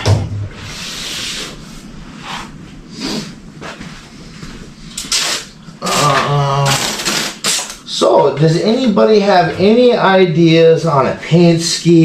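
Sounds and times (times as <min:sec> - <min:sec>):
tape pulled off roll: 0:05.0 - 0:07.8.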